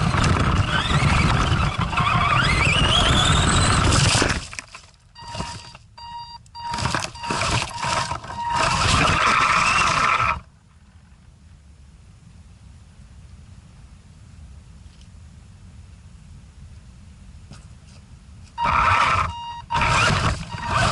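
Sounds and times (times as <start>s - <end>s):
electric motor whining: 0.0s - 5.8s, 6.6s - 10.5s, 18.6s - 20.9s.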